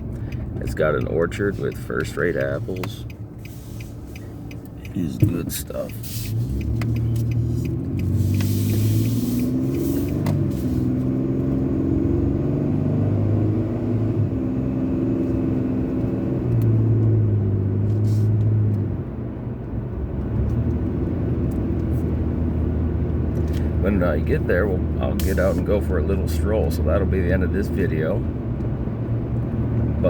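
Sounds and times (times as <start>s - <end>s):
car engine hum: 0.0s - 30.0s
road noise: 0.0s - 30.0s.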